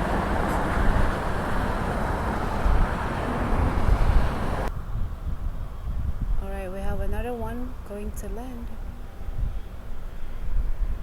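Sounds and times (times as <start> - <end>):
jet engine rumble: 0.0 - 6.4.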